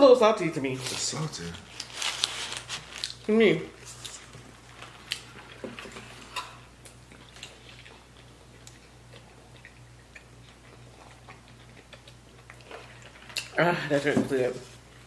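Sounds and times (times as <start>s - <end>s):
chewing and mouth clicks: 5.0s - 13.6s.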